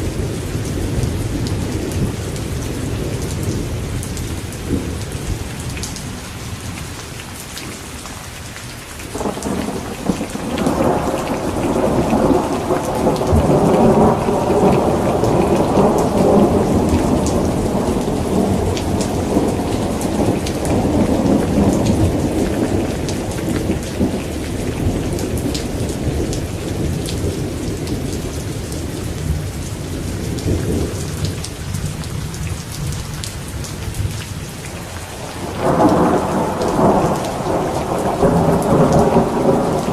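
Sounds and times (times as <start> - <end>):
steady rain falling: 0.0 - 39.9
thunder rumbling: 9.1 - 33.1, 35.1 - 39.9.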